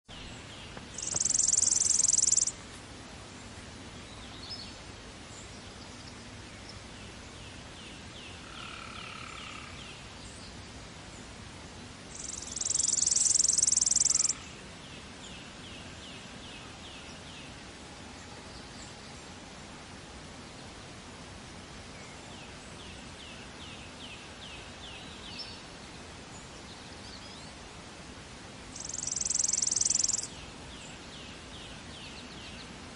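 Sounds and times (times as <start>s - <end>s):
fainter lower bird trills and calls: 0.1s - 2.6s, 12.1s - 14.6s, 28.7s - 32.7s
steady background hiss: 0.1s - 32.9s
sparrow singing high trills: 1.0s - 2.6s, 12.1s - 14.4s, 28.8s - 30.4s.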